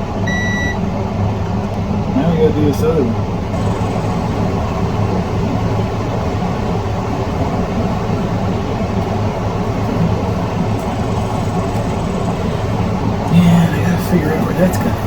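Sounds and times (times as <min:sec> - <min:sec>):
constant hum: 0:00.0 - 0:15.0
low droning noise: 0:03.3 - 0:15.0.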